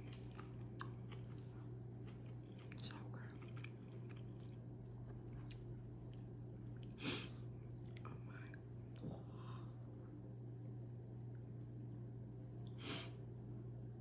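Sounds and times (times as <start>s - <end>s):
person chewing food: 0.0s - 9.4s
steady low hum: 0.0s - 14.0s.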